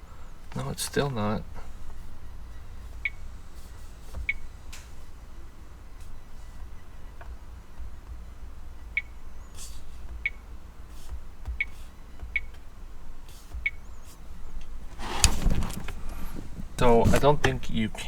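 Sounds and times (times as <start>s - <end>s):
handling rustles: 13.3s - 18.0s.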